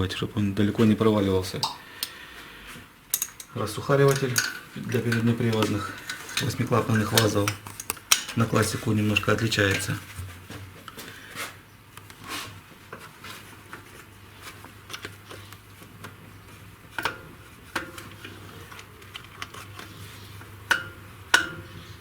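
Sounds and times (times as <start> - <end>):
steel tools clinking on metal: 3.1 - 10.0.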